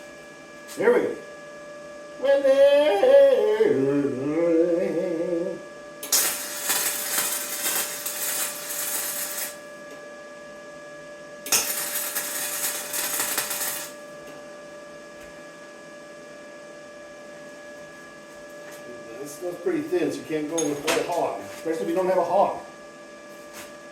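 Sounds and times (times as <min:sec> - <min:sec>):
welder electrical hum: 0:00.0 - 0:23.9
welding arc crackling: 0:06.0 - 0:09.6, 0:11.5 - 0:14.0.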